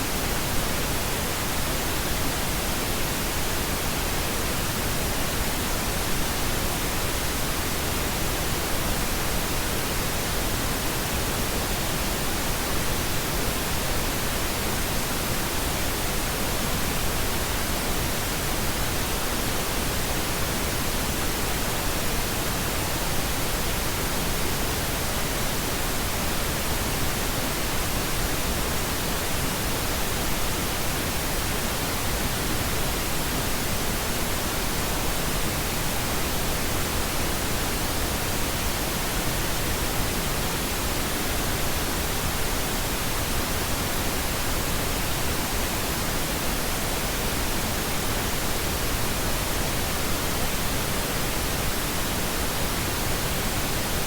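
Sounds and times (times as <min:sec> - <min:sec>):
pink noise hiss: 0:00.0 - 0:54.0.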